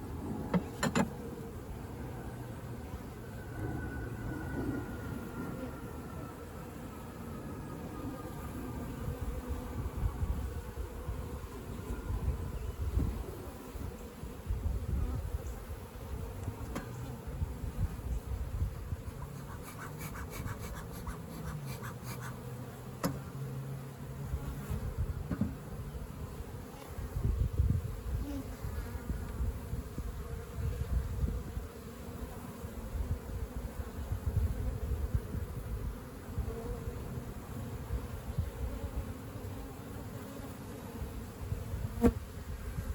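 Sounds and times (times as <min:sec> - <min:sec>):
bees buzzing: 0:15.2 - 0:24.8.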